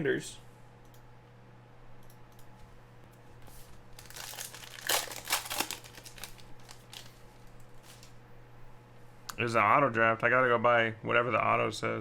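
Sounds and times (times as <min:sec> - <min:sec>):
plastic wrapping crinkling: 0:03.5 - 0:08.2.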